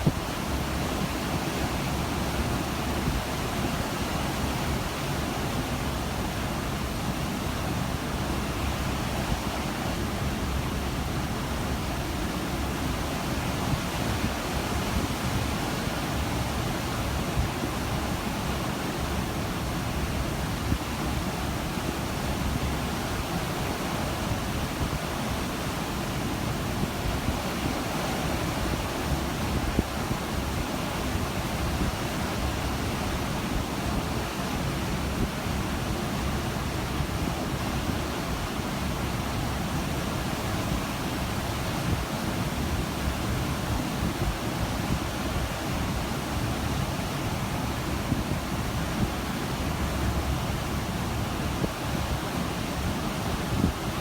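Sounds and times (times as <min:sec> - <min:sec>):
wind on microphone: 0:40.7 - 0:54.0.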